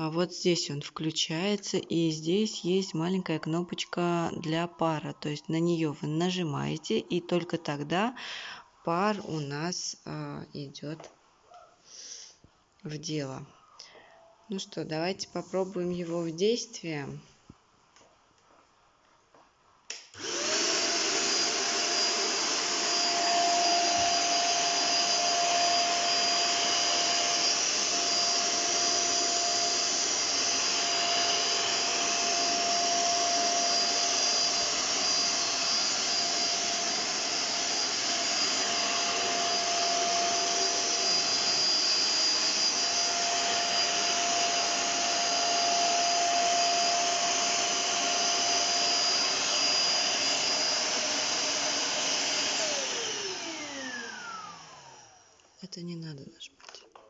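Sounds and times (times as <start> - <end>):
steam vacuum cleaner running: 20.2 - 55.4.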